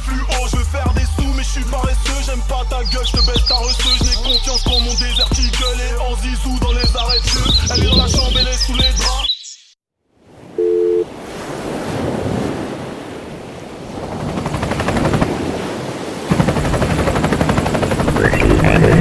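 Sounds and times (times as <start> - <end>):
wind buffeting microphone: 6.6 - 9.1, 11.2 - 19.0
two-tone beep: 10.6 - 11.1.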